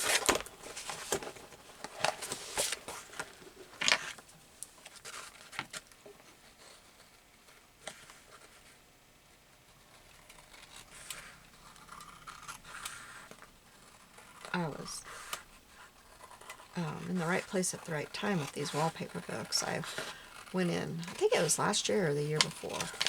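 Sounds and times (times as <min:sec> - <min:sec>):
paper rustling: 0:00.0 - 0:08.8, 0:09.7 - 0:23.0
scissors snipping paper: 0:10.1 - 0:23.0.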